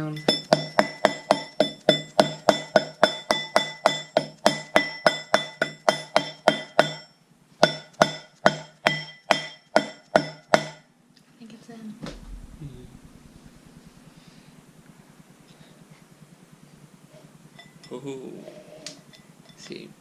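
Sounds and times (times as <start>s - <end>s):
hammer tapping on metal: 0.0s - 10.8s.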